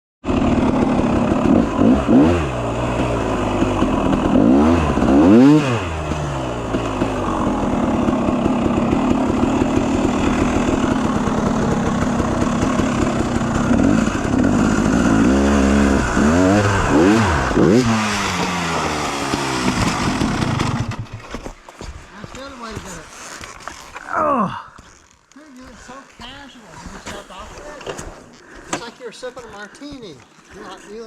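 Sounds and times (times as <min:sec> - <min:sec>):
dirt bike engine revving: 0:00.2 - 0:21.2.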